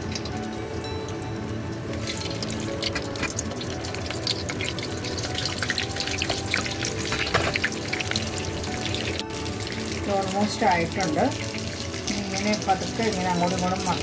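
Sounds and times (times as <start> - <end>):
background music: 0.0 - 14.0
food sizzling in oil: 0.0 - 14.0.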